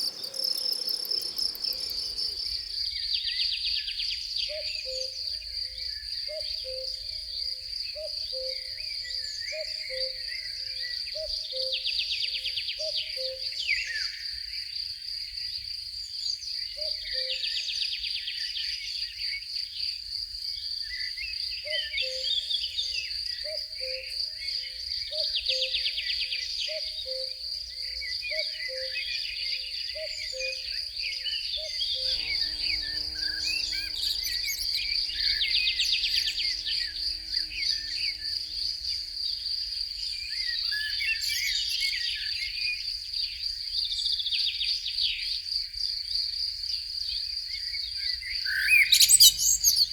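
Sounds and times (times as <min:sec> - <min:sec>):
low drone: 0:00.0 - 0:03.0
crickets trilling: 0:00.0 - 0:03.3, 0:23.9 - 0:41.9, 0:48.2 - 0:49.9
songbirds singing: 0:00.0 - 0:03.7, 0:47.8 - 0:49.9.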